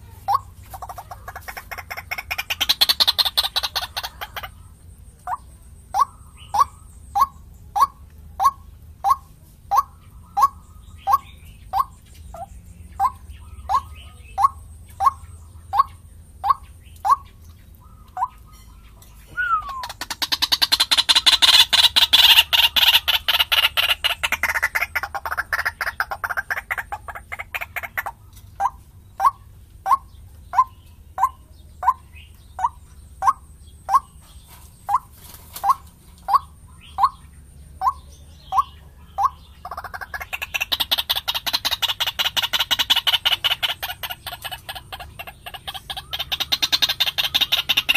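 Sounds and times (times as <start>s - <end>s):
bird fast chattering: 0.0s - 47.9s
bird downward-slurred calls: 0.1s - 12.4s, 13.0s - 34.1s.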